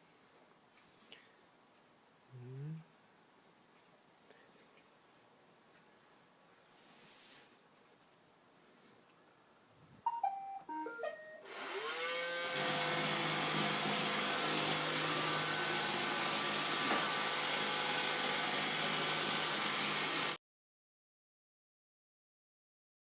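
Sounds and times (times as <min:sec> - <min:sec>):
vacuum motor whining: 0:11.4 - 0:20.4.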